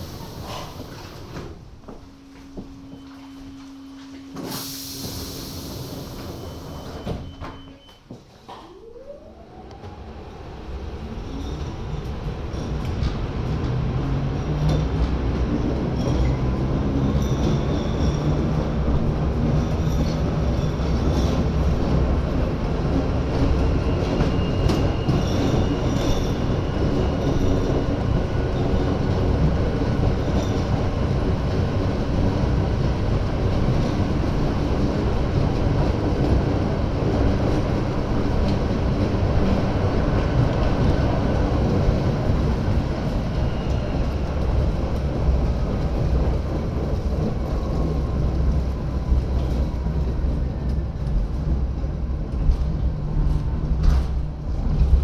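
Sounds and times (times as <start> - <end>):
rail car running rumble: 0.0 - 55.0
faint high squeal: 2.2 - 9.7.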